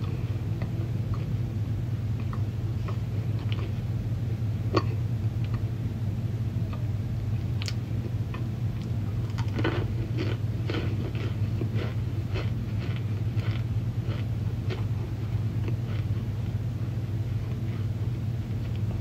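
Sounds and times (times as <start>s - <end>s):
steady low hum: 0.0s - 19.0s
mouth crunching dry chunks: 8.8s - 16.2s.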